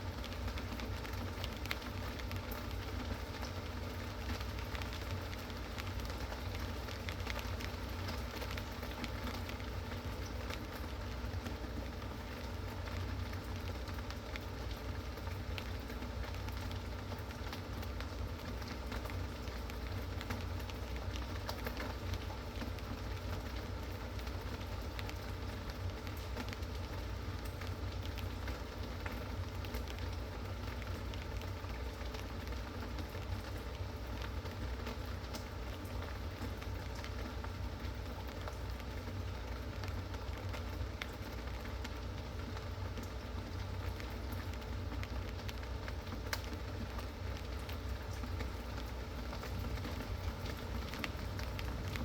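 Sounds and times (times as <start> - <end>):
raindrops ticking: 0.0 - 52.0
steady rain hiss: 0.0 - 52.0
low steady rumble: 41.4 - 52.0.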